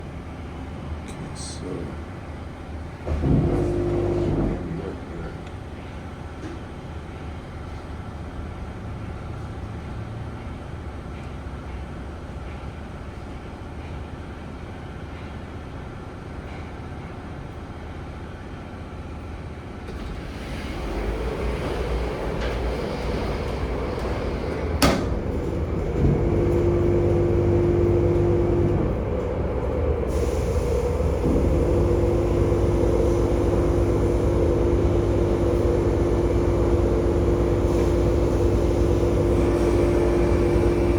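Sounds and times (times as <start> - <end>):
car wash machinery humming: 0.0 - 9.3, 18.9 - 40.9.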